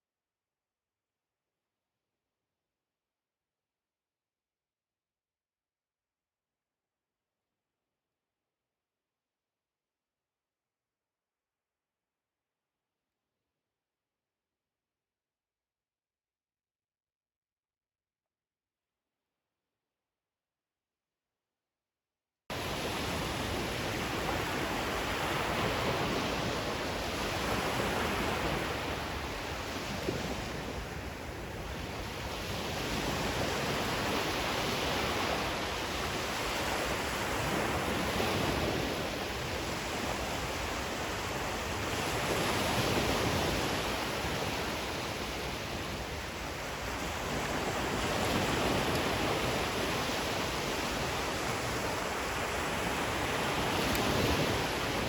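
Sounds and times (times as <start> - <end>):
ocean waves washing ashore: 22.5 - 55.0.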